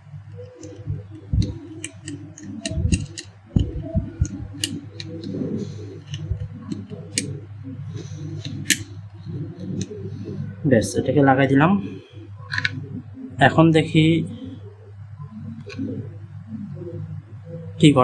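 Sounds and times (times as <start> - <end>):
steady low hum: 0.0 - 18.0
screwdriver and metal parts clicking: 0.4 - 7.3, 8.3 - 8.9, 12.5 - 12.8.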